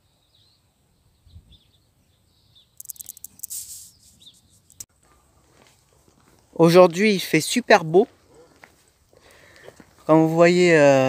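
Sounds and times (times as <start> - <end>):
small birds chirping faintly: 0.0 - 5.4.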